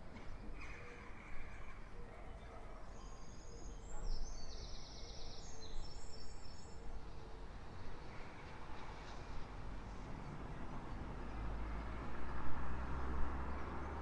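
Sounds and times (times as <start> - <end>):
distant street traffic rumble: 0.0 - 14.0
songbird singing: 2.4 - 7.1.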